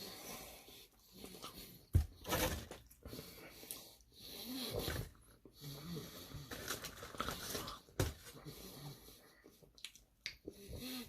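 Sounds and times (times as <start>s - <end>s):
lip smacking: 9.6s - 10.6s.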